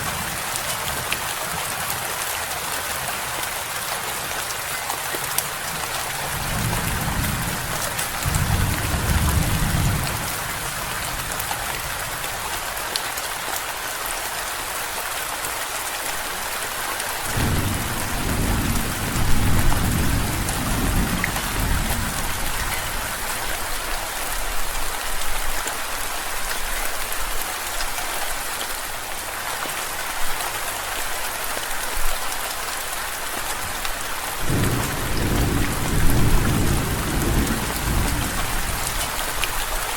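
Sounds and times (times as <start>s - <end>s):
heavy rain: 0.0s - 39.9s
thunder rumbling: 17.3s - 23.1s, 34.5s - 39.4s.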